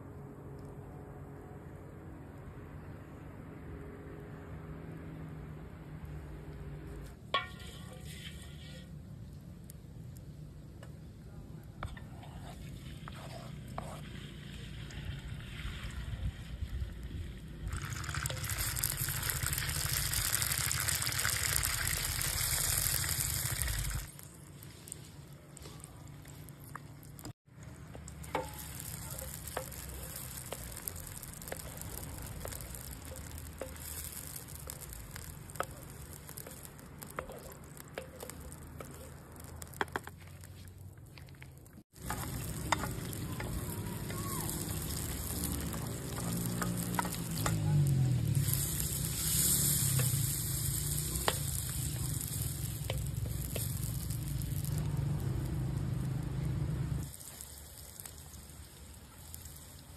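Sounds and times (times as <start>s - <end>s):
crackles and pops: 6.5s - 59.9s
stirring in a pan: 7.3s - 9.3s, 11.7s - 14.8s, 17.8s - 56.2s
food sizzling in a pan: 7.4s - 9.0s, 12.2s - 40.6s, 41.8s - 59.9s.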